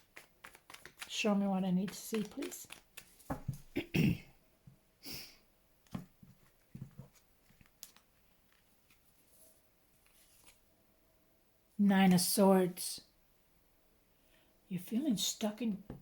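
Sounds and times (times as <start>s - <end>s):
cards tapping and clicking: 0.0s - 3.8s, 5.9s - 8.6s.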